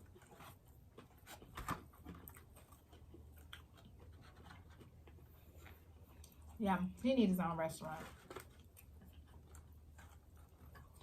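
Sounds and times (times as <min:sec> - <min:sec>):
people chewing food: 0:00.0 - 0:11.0.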